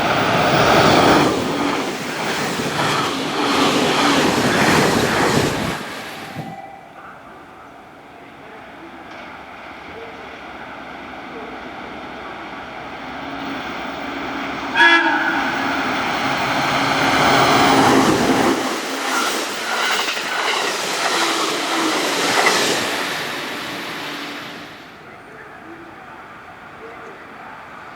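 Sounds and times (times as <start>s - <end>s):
train wheels clacking on rail joints: 0.0s - 6.6s, 13.5s - 24.8s
electric train passing: 0.0s - 27.9s
train horn blast: 14.6s - 17.7s.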